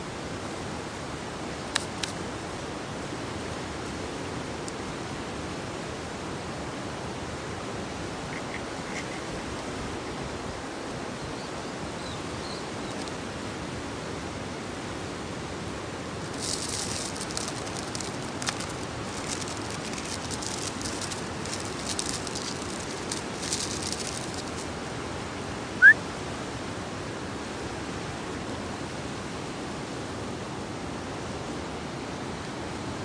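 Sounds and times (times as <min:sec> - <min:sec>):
background hiss: 0:00.0 - 0:33.0
campfire crackling: 0:16.1 - 0:25.0.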